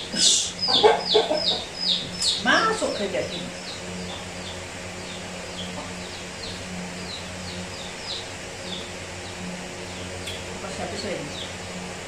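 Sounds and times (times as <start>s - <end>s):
birds chirping: 0.0s - 12.0s
low steady hum: 0.0s - 12.0s.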